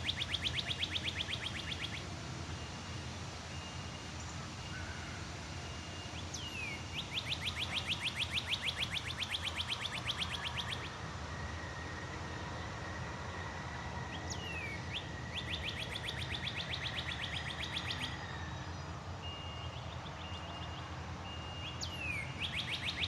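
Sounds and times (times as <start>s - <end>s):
bird chirping rapidly: 0.0s - 2.0s, 6.4s - 10.9s, 21.6s - 23.0s
low outdoor background noise: 0.0s - 23.0s.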